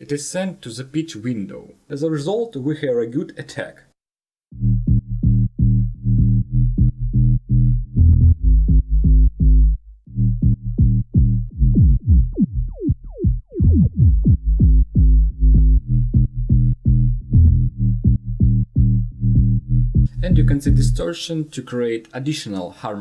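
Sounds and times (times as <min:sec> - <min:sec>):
synth bass rhythmic notes: 0:04.5 - 0:21.0.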